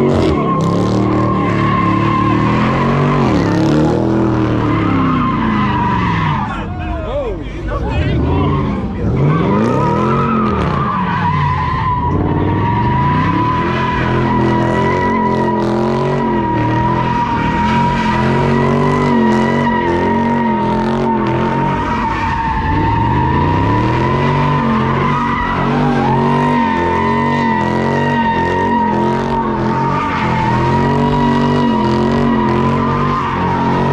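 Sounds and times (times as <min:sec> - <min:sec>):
car engine revving: 0:00.0 - 0:06.7, 0:07.7 - 0:33.9
tyre squeal: 0:08.3 - 0:33.9.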